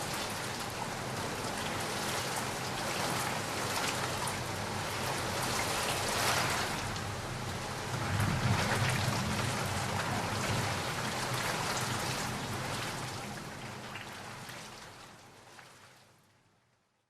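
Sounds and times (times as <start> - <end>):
steady rain falling: 0.0 - 16.2
low rumble of thunder: 7.4 - 13.2.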